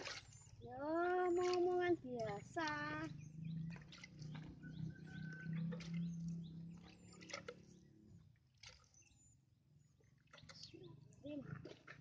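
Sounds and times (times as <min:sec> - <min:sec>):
faint bird chirps: 0:03.0 - 0:07.8, 0:08.8 - 0:11.5.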